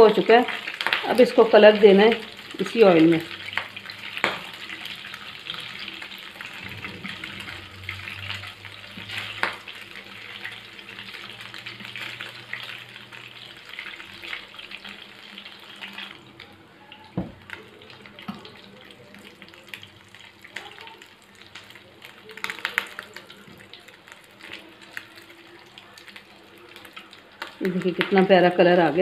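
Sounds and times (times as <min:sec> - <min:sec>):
meat sizzling in a pan: 0:00.0 - 0:29.0.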